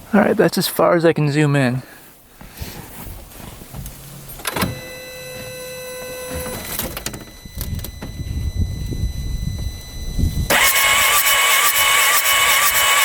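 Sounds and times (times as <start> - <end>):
electric motor whine: 4.6 - 13.0
engine cranking: 10.4 - 13.0.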